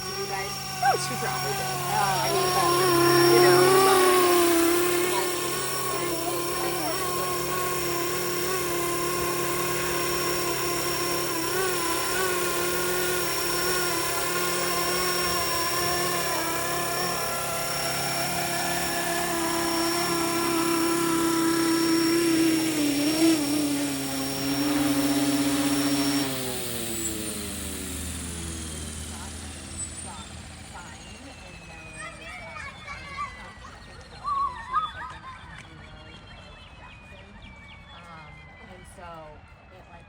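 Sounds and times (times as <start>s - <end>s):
helicopter motor and rotor whine: 0.0s - 40.0s.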